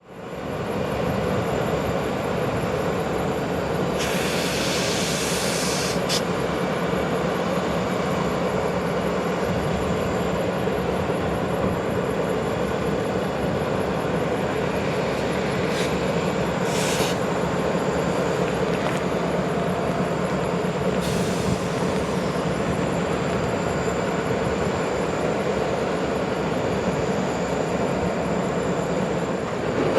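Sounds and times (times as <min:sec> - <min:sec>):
freight train rumble: 0:00.0 - 0:29.9
bursts of hiss: 0:04.0 - 0:06.3, 0:15.7 - 0:17.2.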